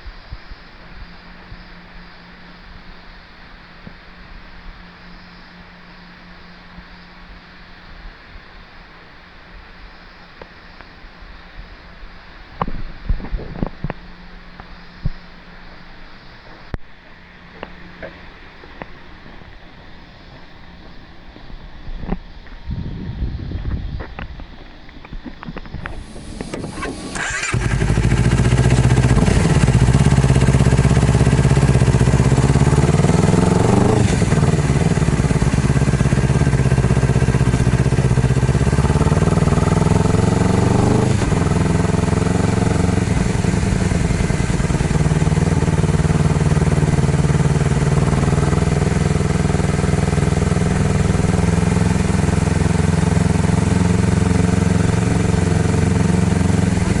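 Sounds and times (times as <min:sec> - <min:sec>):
motorcycle engine revving: 0:25.8 - 0:57.0.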